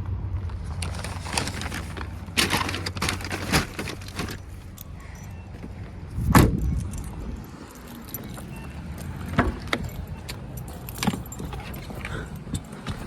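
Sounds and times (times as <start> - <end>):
keys jangling: 7.6 - 13.0.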